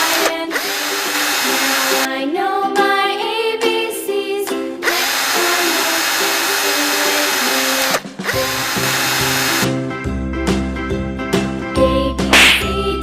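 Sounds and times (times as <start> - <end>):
small electric drill whirring: 0.0 - 2.1, 4.8 - 9.7
children's background music: 0.0 - 13.0.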